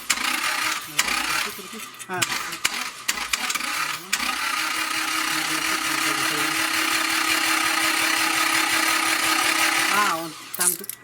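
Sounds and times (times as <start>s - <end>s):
power tool whirring: 0.0s - 11.0s.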